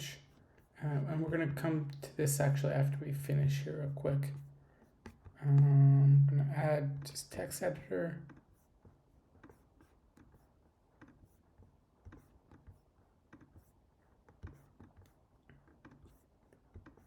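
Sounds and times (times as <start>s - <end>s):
keyboard and mouse clicks: 14.3s - 17.0s.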